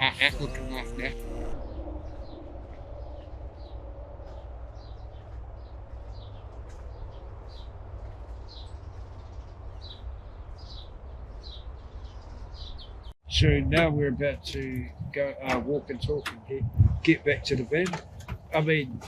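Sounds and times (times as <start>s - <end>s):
steady low rumble: 0.0s - 8.3s, 13.3s - 17.7s
small birds chirping: 0.0s - 13.2s.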